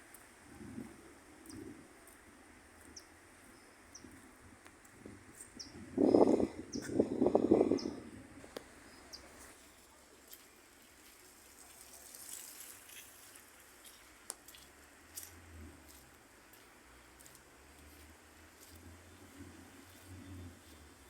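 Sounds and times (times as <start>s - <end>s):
birds chirping: 2.8s - 4.2s, 5.3s - 9.4s.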